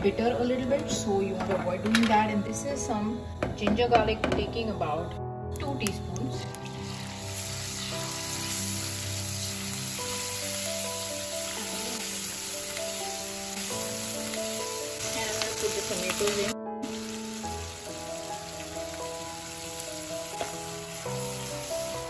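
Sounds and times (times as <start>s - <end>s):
paste sizzling in hot fat: 6.4s - 22.0s.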